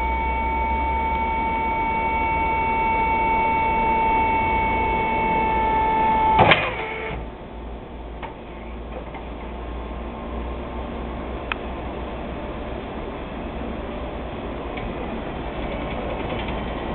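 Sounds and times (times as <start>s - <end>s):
low hum: 0.0s - 15.8s
electric truck whine: 0.0s - 16.9s
truck clunk: 6.2s - 7.3s.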